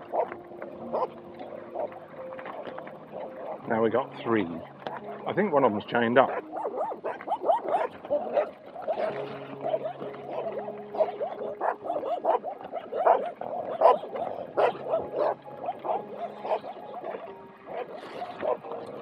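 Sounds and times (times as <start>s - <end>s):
dogs barking: 0.0s - 5.3s, 6.2s - 19.0s.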